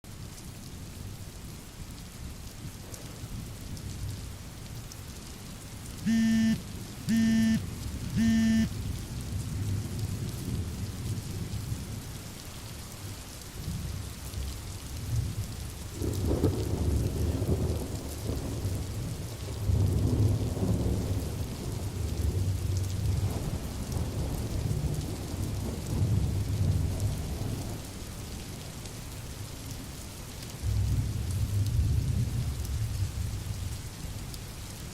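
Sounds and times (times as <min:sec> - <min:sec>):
steady rain: 0:00.0 - 0:34.9
short loud beeps: 0:06.1 - 0:07.6, 0:08.2 - 0:08.7.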